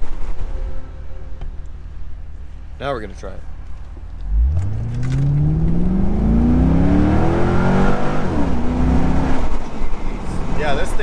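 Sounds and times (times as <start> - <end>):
car engine accelerating: 4.0 - 10.6.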